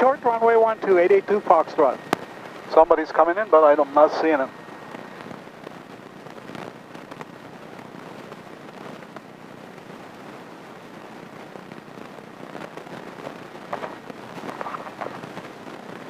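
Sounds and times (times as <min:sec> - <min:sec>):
small crackles: 0:00.0 - 0:16.0
intercom hiss: 0:02.6 - 0:04.6.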